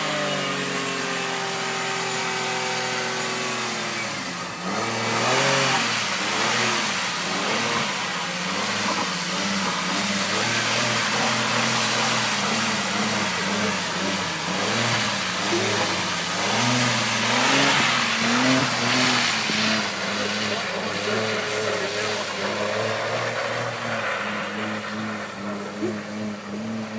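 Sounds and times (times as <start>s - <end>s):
car engine revving: 0.0s - 26.9s
tyres spinning and spraying mud: 0.0s - 26.9s.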